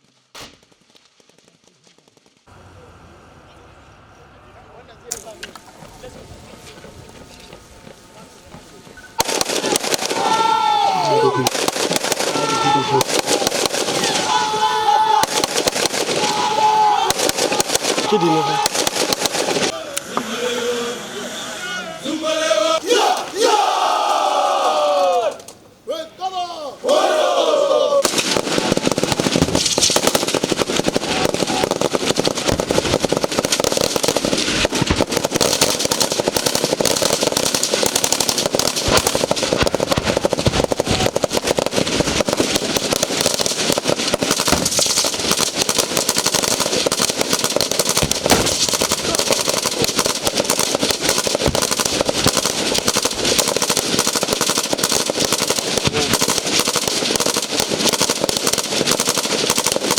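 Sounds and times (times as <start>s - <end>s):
rapid gunfire: 9.2s - 14.3s, 15.1s - 19.7s, 28.0s - 59.9s.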